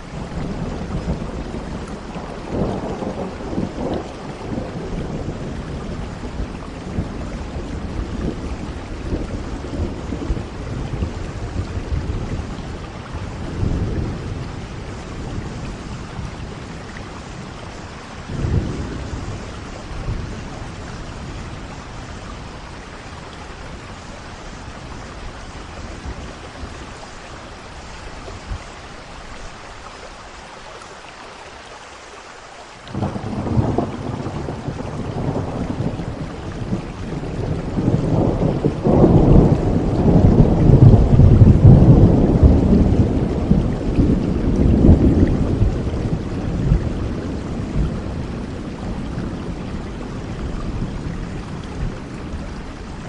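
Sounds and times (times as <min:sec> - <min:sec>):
rolling thunder: 0:00.0 - 0:28.7, 0:32.9 - 0:53.0
steady rain: 0:00.0 - 0:53.0.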